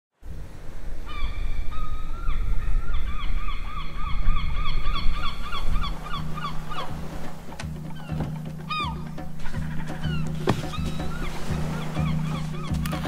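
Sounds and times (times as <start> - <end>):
bird calling: 1.0 - 13.0.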